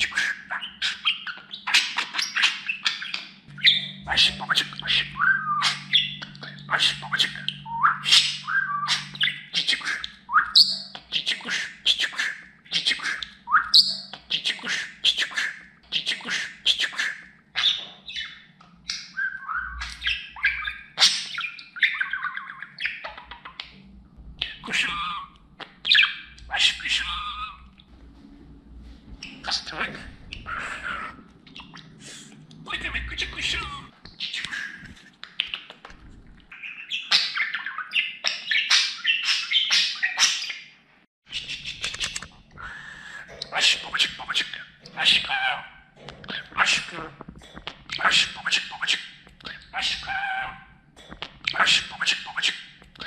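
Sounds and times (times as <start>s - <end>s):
budgerigar warbling and chirping: 0.0s - 14.2s, 16.8s - 23.8s, 24.4s - 27.7s, 36.5s - 40.7s
budgerigar chattering and warbling: 0.0s - 23.8s, 29.2s - 32.0s, 41.3s - 53.0s.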